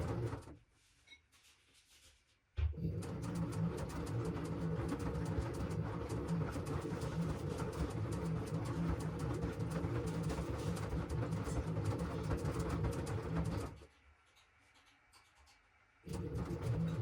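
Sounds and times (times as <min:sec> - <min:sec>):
washing machine humming: 0:00.0 - 0:00.6, 0:02.6 - 0:13.8, 0:16.1 - 0:17.0.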